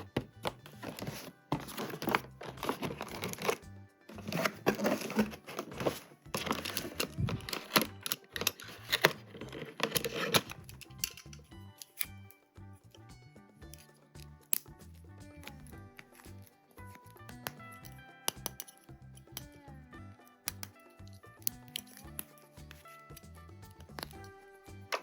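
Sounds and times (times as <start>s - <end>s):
background music: 0.0s - 25.0s
packaging crinkling and tearing: 0.6s - 10.6s.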